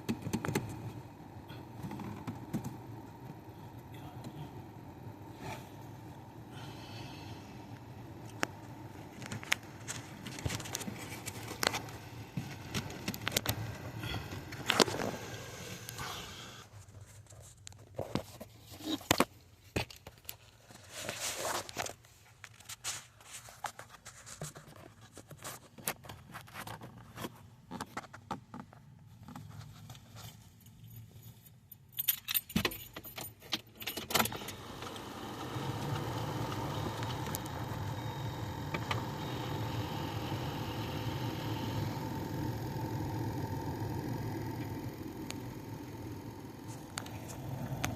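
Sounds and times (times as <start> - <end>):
steady hum: 0.0 - 17.1, 34.1 - 47.9
car keys jangling: 31.7 - 34.4.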